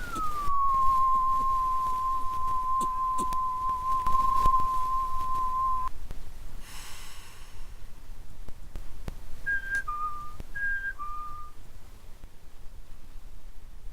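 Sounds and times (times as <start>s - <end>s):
mouth whistle of two alternating notes: 0.0s - 5.9s, 9.5s - 11.6s
short hiss: 6.6s - 7.8s.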